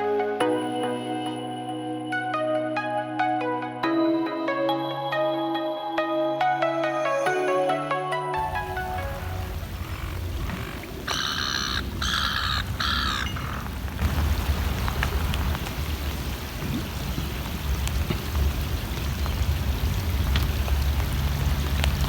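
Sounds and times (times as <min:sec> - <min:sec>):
steady rain falling: 0:08.4 - 0:22.0
bird calls: 0:08.6 - 0:13.8.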